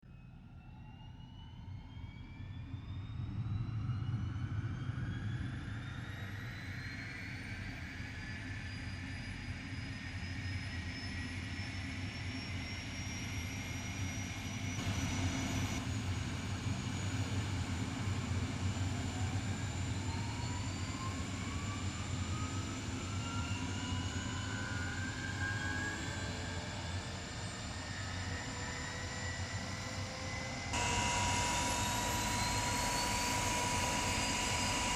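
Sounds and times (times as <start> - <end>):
helicopter turbine whine: 0.6 - 34.9
second turbine whine: 10.5 - 34.9.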